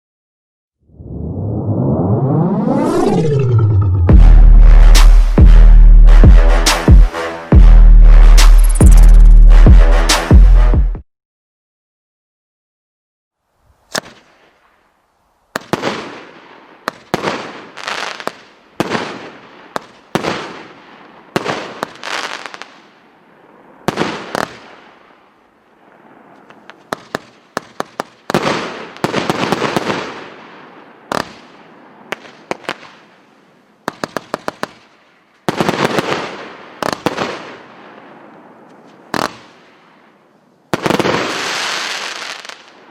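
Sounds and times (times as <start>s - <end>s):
rapid firework pops: 13.9s - 14.4s, 15.6s - 20.6s, 23.9s - 24.7s, 26.4s - 30.1s, 31.1s - 31.5s, 33.8s - 37.5s, 39.1s - 39.6s
firework bangs: 23.8s - 25.0s, 26.0s - 30.4s, 39.0s - 39.8s, 40.7s - 42.8s.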